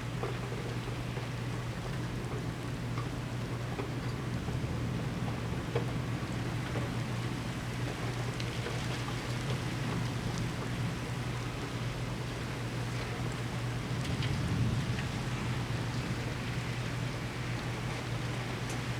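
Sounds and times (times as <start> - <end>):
rain falling: 12.8 - 18.9.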